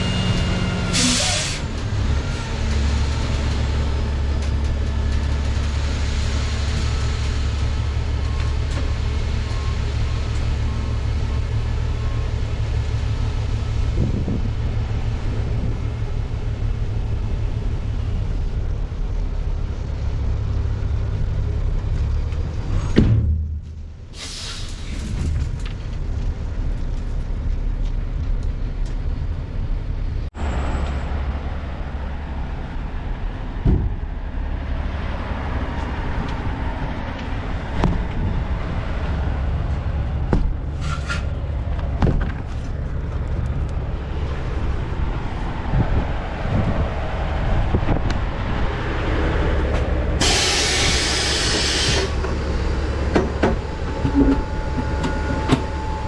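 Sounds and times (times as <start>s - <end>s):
dump truck diesel engine running: 0.0s - 22.8s, 35.2s - 56.0s
air hiss: 50.2s - 52.2s.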